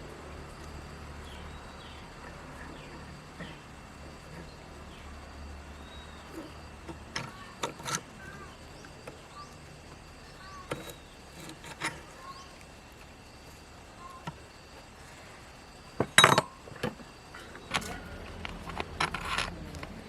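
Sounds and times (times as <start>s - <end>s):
small birds chirping: 0.6s - 11.4s, 12.0s - 13.0s.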